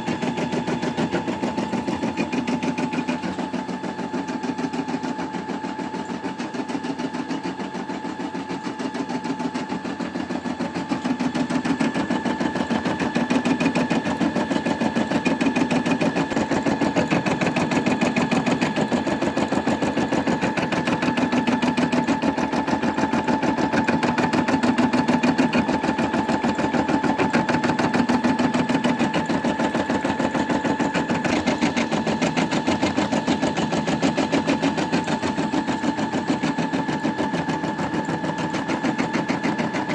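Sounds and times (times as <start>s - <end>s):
embroidery machine stitching: 0.0s - 39.9s.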